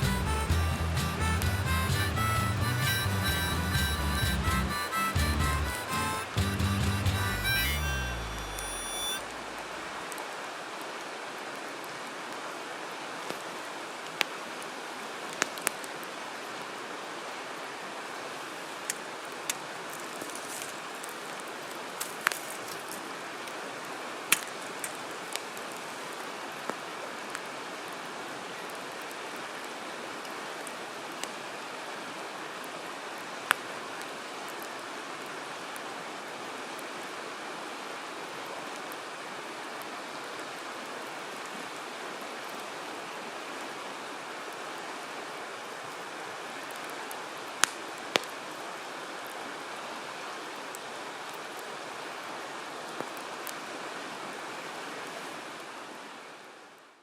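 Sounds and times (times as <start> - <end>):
steady rushing hiss: 0.0 - 10.1
campfire crackling and popping: 0.0 - 10.2, 47.6 - 48.3.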